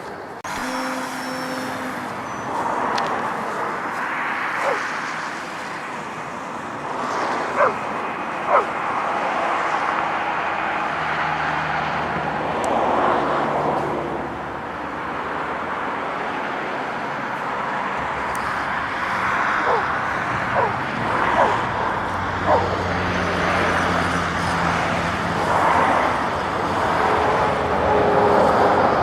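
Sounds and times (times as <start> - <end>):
steady background rush: 2.1 - 10.3, 18.0 - 23.8
dog barking: 4.6 - 4.9, 7.6 - 7.8, 8.5 - 8.8, 19.6 - 21.7, 22.4 - 22.8.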